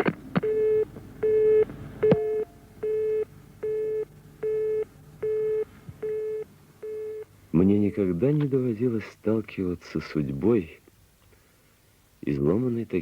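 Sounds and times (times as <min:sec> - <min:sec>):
telephone busy signal beeps: 0:00.0 - 0:07.3
phone line click: 0:01.2 - 0:03.0.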